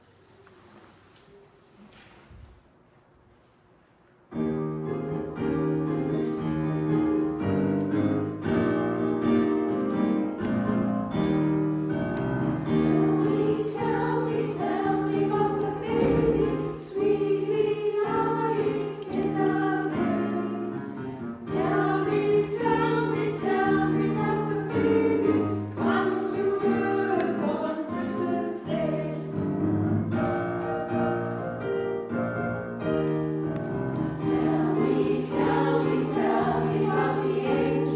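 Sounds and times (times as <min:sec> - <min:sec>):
piano accompaniment: 0:04.3 - 0:37.9
choir singing in parts: 0:12.0 - 0:30.0, 0:33.9 - 0:37.9.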